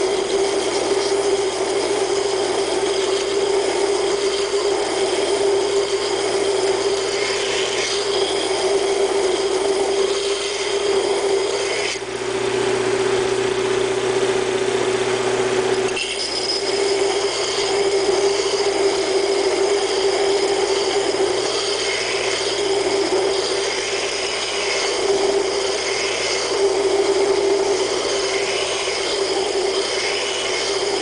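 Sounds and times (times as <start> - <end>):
belt grinder humming: 0.0 - 12.3, 12.9 - 31.0.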